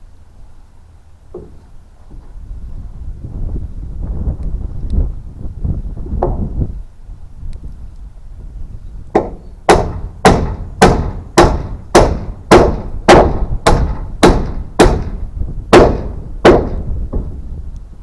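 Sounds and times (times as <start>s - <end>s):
hammer striking nails into wood: 9.2s - 17.4s.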